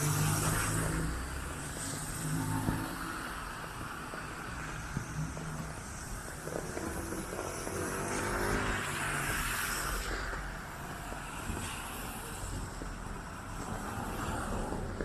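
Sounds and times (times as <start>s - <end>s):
tyre hiss on damp street: 0.0s - 15.0s.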